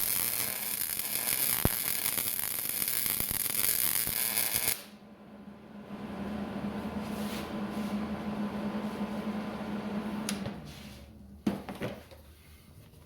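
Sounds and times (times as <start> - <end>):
electric welder humming: 0.0 - 5.0.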